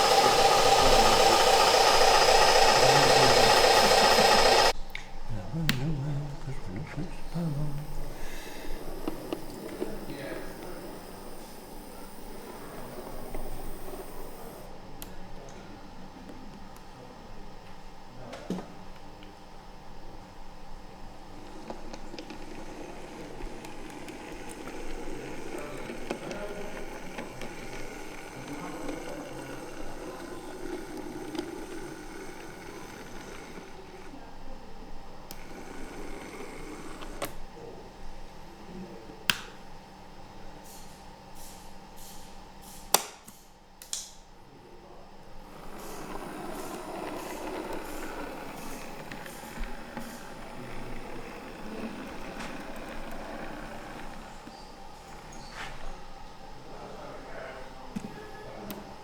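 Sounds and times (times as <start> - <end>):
murmur of distant chatter: 22.8 - 36.7, 44.4 - 59.0.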